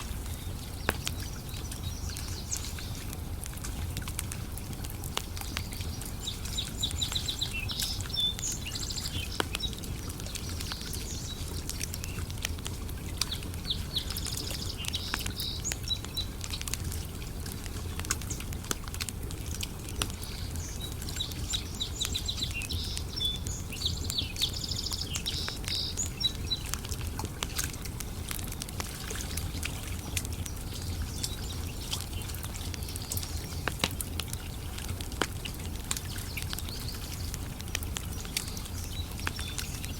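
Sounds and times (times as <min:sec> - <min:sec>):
campfire crackling and popping: 0:00.0 - 0:39.9
songbird trilling: 0:13.3 - 0:16.3.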